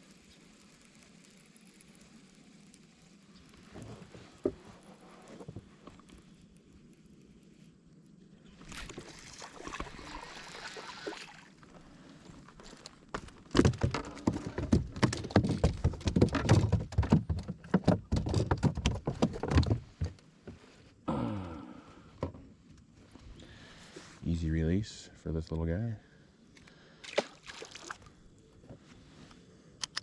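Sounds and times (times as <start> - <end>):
fish thrashing and splashing: 8.6 - 11.7, 27.0 - 28.2.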